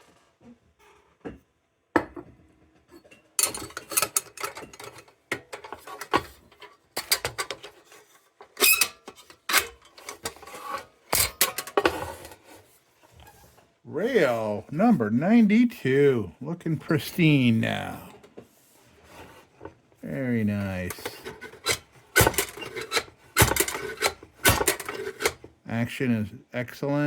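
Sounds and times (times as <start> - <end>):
lantern metal clicks and rattles: 3.4 - 12.4, 20.9 - 25.5.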